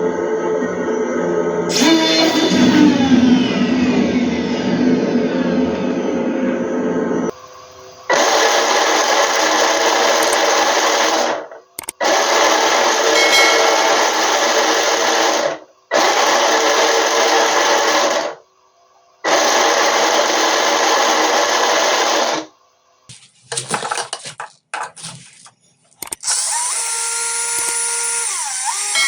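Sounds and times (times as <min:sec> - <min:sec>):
small high-speed motor running: 0:01.7 - 0:18.4, 0:19.2 - 0:22.5, 0:26.0 - 0:29.0.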